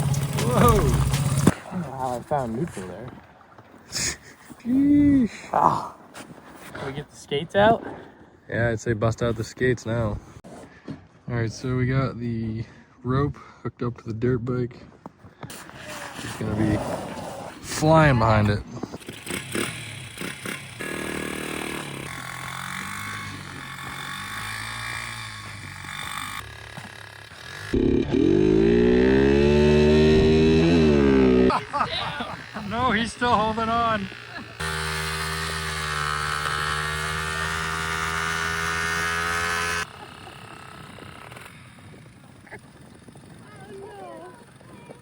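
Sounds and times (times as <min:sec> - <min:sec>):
pit bike engine under load: 0:00.0 - 0:02.4, 0:17.8 - 0:45.0.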